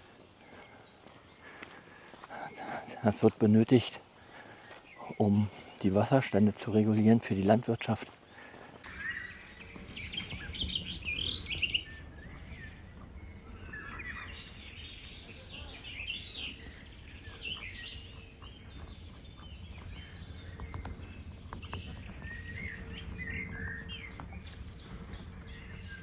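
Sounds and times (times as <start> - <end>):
songbirds chirping and singing: 0.0 - 26.0
steady low rumble: 9.0 - 26.0.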